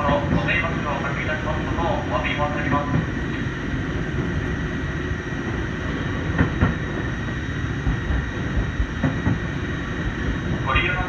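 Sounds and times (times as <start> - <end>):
train wheels rumbling on track: 0.0 - 11.0
wheels knocking on track: 6.2 - 10.6.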